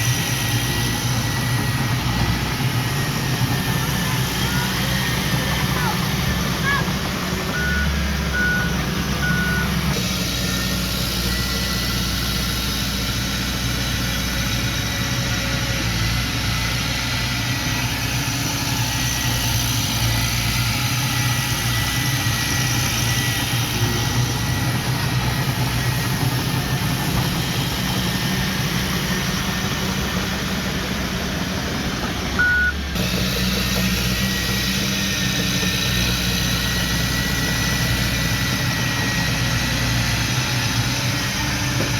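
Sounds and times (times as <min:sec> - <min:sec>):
heavy diesel machinery running: 0:00.0 - 0:41.9
reversing alarm beeping: 0:07.5 - 0:10.0, 0:32.4 - 0:33.0.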